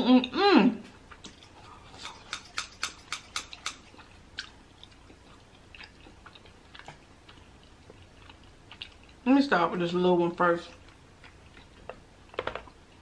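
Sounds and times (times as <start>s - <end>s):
wet chewing mouth clicks: 1.1s - 9.2s.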